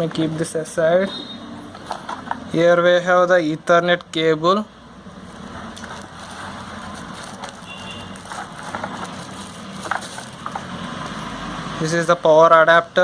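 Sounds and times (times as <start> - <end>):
packaging rustling and knocking: 5.8 - 10.8.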